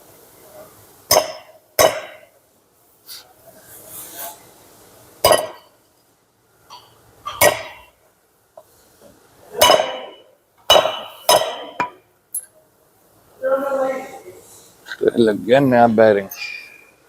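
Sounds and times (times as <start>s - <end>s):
hammer striking metal: 1.1s - 2.3s, 5.2s - 5.7s, 6.7s - 7.9s, 9.6s - 12.0s.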